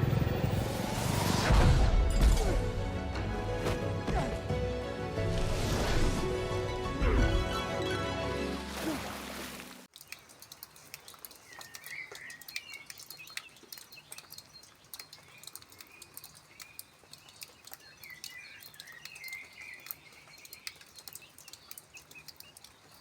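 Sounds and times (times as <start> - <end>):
faint ticks and clicks: 9.9 - 23.0
small birds chirping: 9.9 - 23.0.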